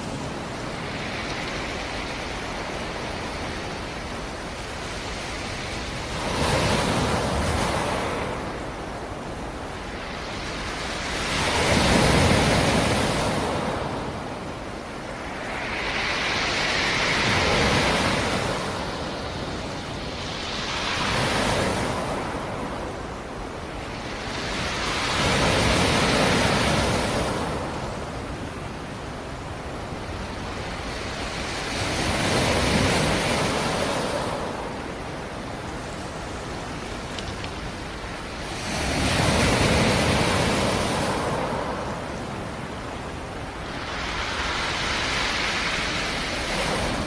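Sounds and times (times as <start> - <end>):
waves breaking: 0.0 - 47.0.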